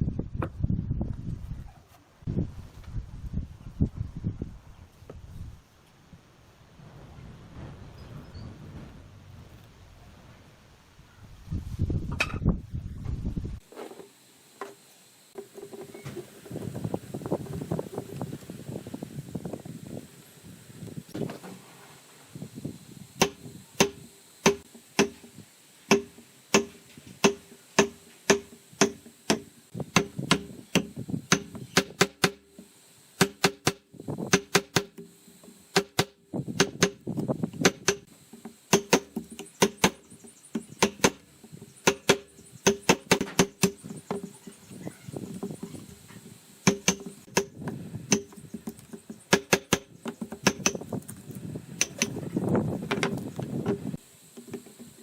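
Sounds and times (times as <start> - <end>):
tool striking hollow bamboo: 23.2 - 44.5, 46.6 - 55.0.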